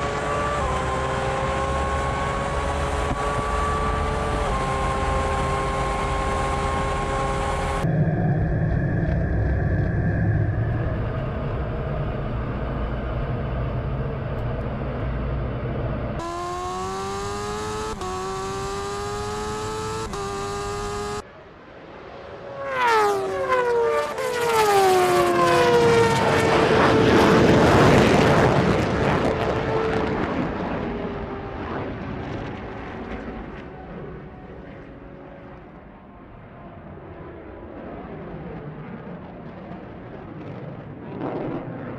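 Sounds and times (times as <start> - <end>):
racing engine revving: 0.0 - 7.9, 16.2 - 21.2
low engine rumble: 5.4 - 16.2.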